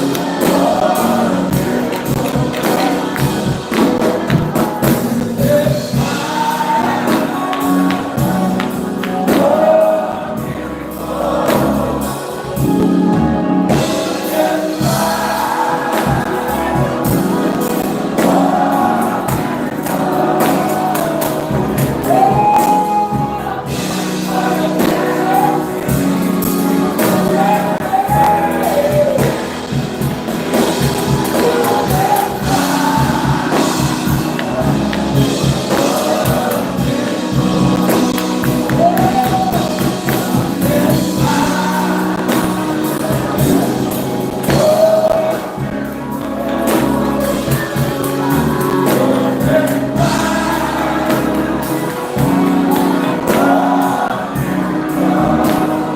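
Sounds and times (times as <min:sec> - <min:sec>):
instrumental accompaniment: 0:00.0 - 0:55.9
steady percussion: 0:00.0 - 0:55.9
voices singing gospel music: 0:00.0 - 0:55.9.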